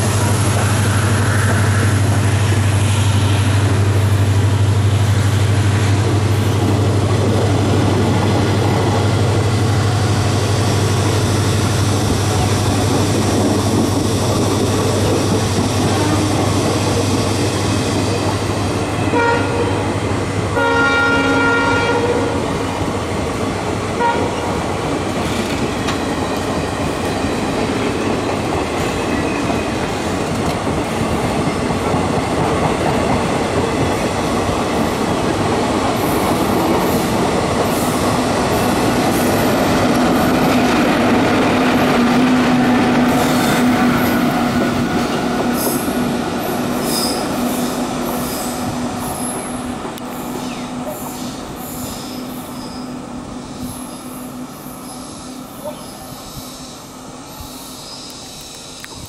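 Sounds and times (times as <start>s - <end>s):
electric locomotive humming: 0.0s - 59.0s
train coaches rolling past: 0.0s - 59.0s
train horn: 15.8s - 16.6s, 19.0s - 19.9s, 20.5s - 22.6s, 24.0s - 24.6s.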